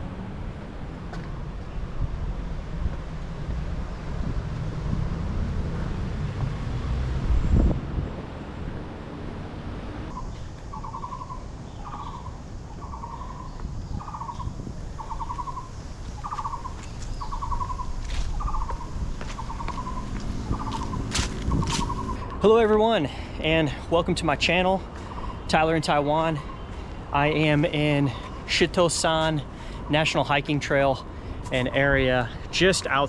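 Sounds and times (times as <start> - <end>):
wind buffeting microphone: 1.3 - 9.0, 9.6 - 22.5
bird buzzy call: 10.1 - 22.4.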